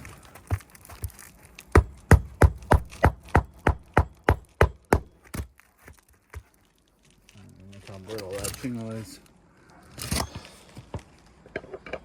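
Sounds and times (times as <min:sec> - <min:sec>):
hammer striking nail: 0:01.7 - 0:05.2.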